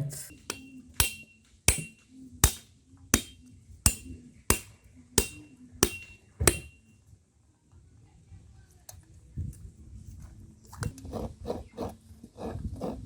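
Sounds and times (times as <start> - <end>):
coconut being struck: 0.0 - 6.8.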